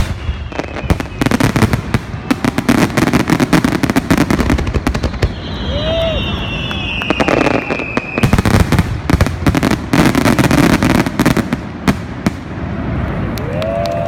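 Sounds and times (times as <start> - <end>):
descending firework whistle: 0.0 - 10.2, 12.6 - 14.0
fireworks bangs and crackles: 0.0 - 14.0.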